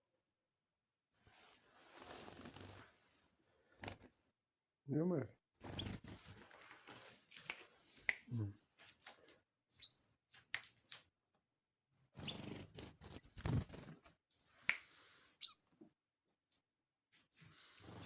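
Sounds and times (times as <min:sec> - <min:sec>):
small bird chirping: 0:03.8 - 0:04.3, 0:05.6 - 0:06.6, 0:07.4 - 0:08.6, 0:09.7 - 0:10.2, 0:12.2 - 0:14.2, 0:15.4 - 0:15.8.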